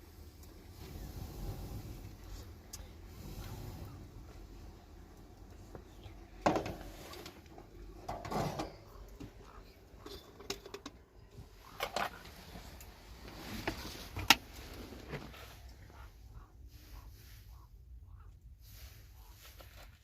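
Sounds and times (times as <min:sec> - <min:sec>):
objects knocking and clattering: 0:06.4 - 0:07.4, 0:08.0 - 0:11.1.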